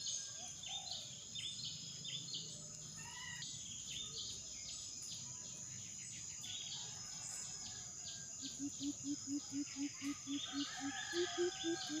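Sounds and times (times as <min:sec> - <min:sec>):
insect drone: 0:03.0 - 0:12.0
bird chirps: 0:08.4 - 0:12.0.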